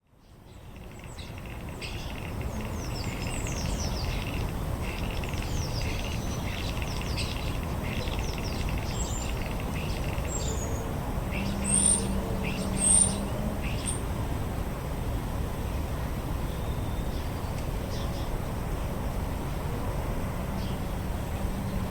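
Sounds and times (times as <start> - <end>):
small birds chirping: 0.2 - 14.0
high-pitched bird calls: 0.6 - 10.7, 11.4 - 14.0.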